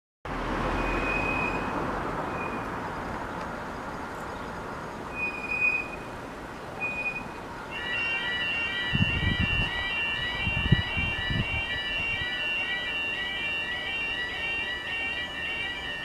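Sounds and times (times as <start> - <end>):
train running past: 5.1 - 16.0
short high tone: 7.8 - 16.0.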